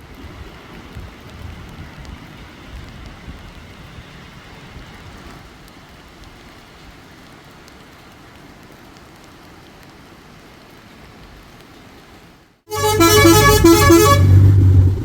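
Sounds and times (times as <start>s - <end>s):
rain hissing: 0.0s - 15.0s
raindrop ticks: 0.1s - 11.8s.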